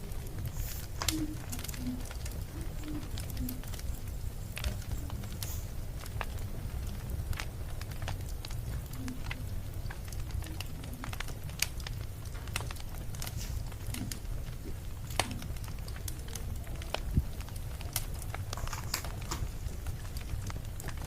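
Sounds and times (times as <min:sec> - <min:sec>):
low fire rumble: 0:00.0 - 0:21.0
wood fire crackling and popping: 0:00.0 - 0:21.0.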